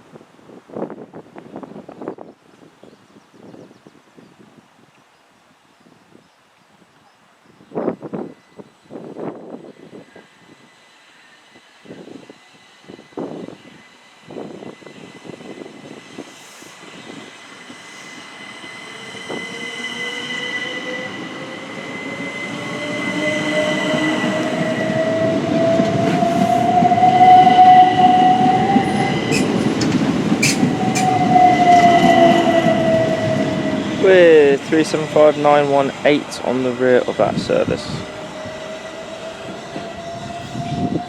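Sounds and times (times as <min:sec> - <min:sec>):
electric train motor whine: 0:08.0 - 0:35.2, 0:37.0 - 0:41.0
train wheels rumbling: 0:11.4 - 0:41.0
wheels clicking over rail joints: 0:29.0 - 0:32.0.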